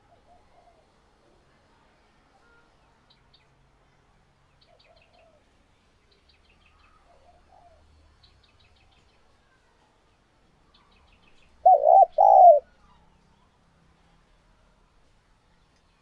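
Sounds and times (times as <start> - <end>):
dove cooing: 11.6 - 12.6
small bird chirping: 11.7 - 12.6.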